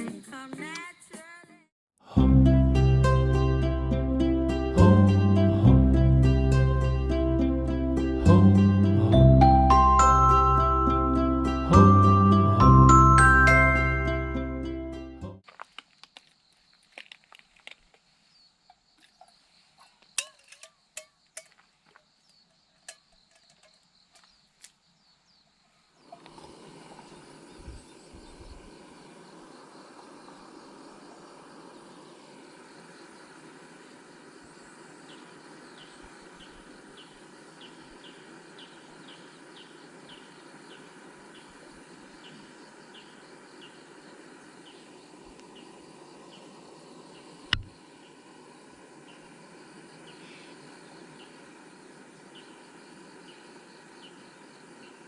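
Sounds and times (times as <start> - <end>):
faint outdoor hiss: 0.0 - 55.0
faint insects chirping: 2.9 - 55.0.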